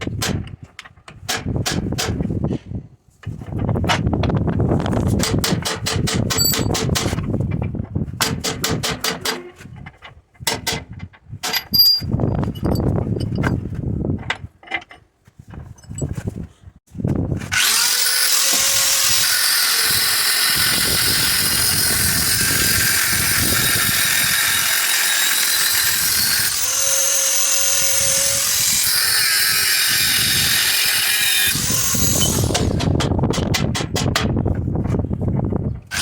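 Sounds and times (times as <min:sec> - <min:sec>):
handheld power tool running: 0:17.5 - 0:33.0.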